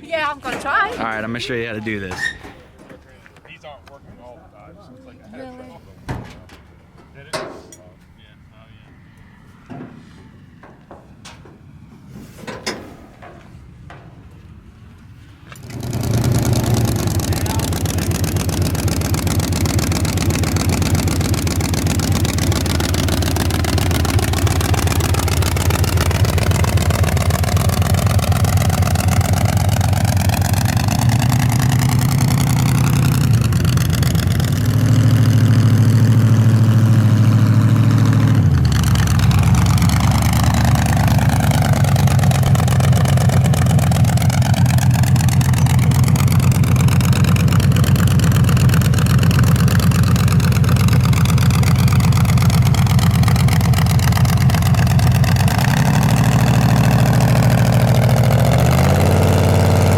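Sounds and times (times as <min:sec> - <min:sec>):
truck engine idling and revving: 0:14.3 - 0:59.9.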